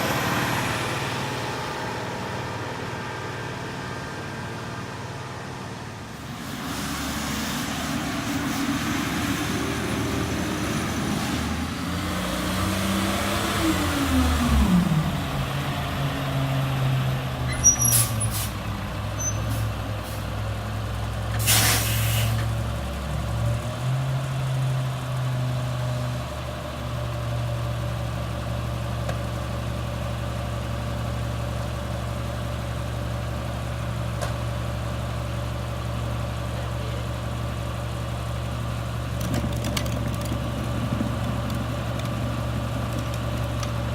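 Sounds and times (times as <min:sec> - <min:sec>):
garbage truck engine: 0:00.0 - 0:43.9
air brakes hissing: 0:17.5 - 0:18.6, 0:19.2 - 0:20.4, 0:21.3 - 0:22.5.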